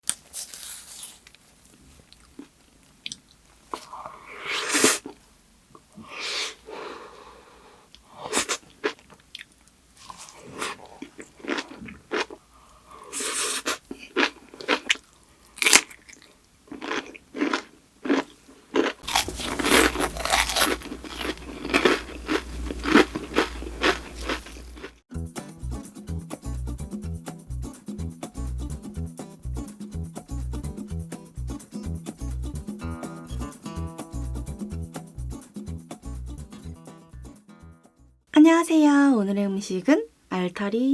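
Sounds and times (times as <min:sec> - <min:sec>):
crunching and chewing food: 0:00.0 - 0:05.2, 0:08.0 - 0:25.0.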